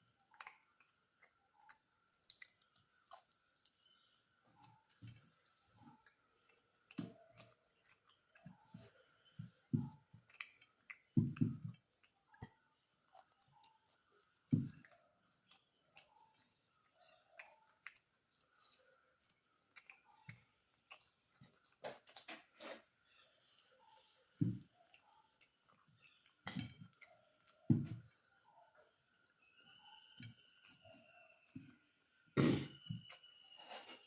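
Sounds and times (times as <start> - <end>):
person chewing food: 0.0 - 34.0
lip smacks: 0.3 - 3.8.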